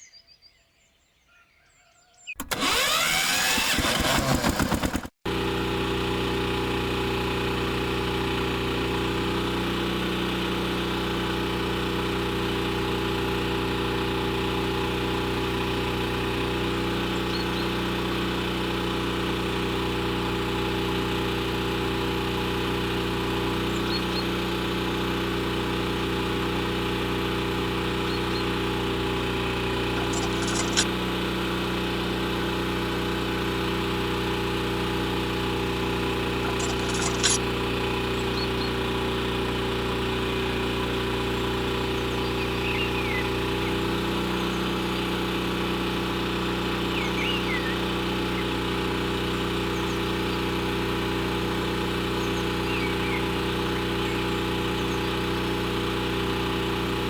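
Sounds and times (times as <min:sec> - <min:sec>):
small motor humming: 0:02.5 - 0:57.0
sharp clicks: 0:29.9 - 0:30.9, 0:36.4 - 0:37.4.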